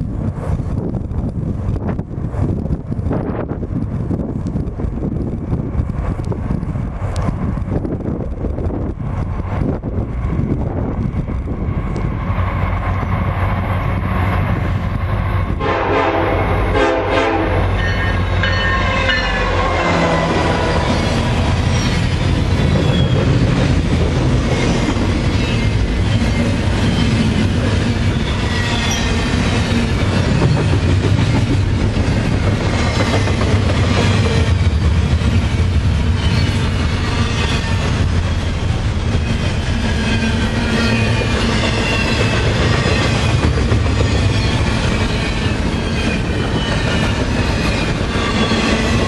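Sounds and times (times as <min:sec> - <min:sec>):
diesel locomotive engine running: 0:00.0 - 0:49.0
locomotive horn blast: 0:15.5 - 0:21.0
high wheel squeals: 0:17.8 - 0:23.5, 0:24.5 - 0:29.6, 0:36.0 - 0:43.4, 0:44.0 - 0:49.0.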